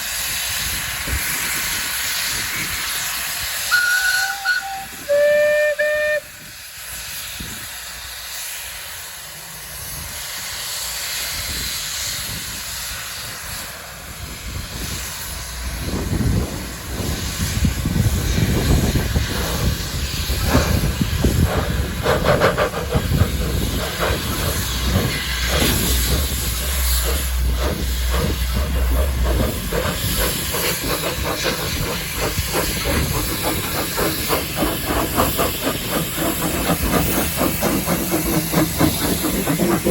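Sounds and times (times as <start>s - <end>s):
steam hissing: 0.0s - 39.9s
steam locomotive whistle: 3.6s - 6.6s
rhythmic exhaust chuffing: 20.5s - 39.9s.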